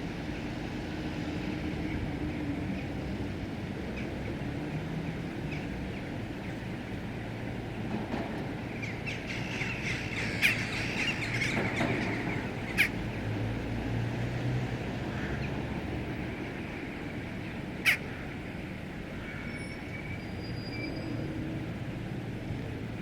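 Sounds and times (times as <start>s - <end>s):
outdoor background noise: 0.0s - 23.0s
flock of birds calling: 8.8s - 13.0s, 17.8s - 18.3s.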